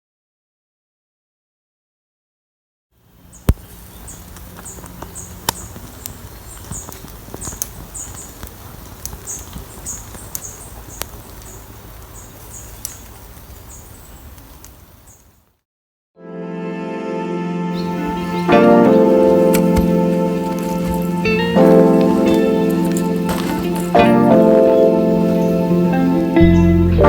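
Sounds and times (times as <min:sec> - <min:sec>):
sharp cracks: 0:03.4 - 0:13.7, 0:18.0 - 0:24.8.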